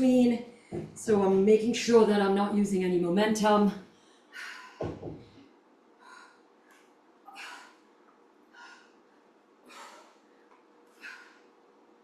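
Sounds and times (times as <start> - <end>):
woman breathing hard: 3.9 - 11.8.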